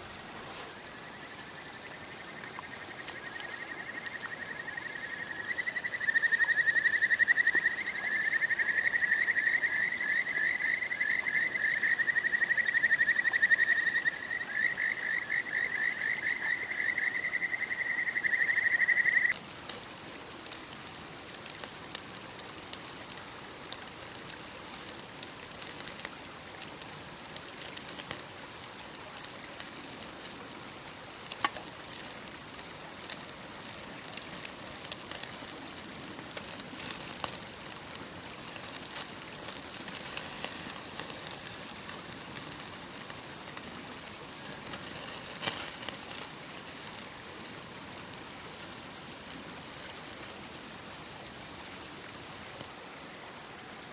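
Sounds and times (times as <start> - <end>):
steady hiss: 0.0 - 53.9
light ticks and crackles: 0.2 - 17.6, 18.3 - 52.8
frog trilling: 2.7 - 19.4.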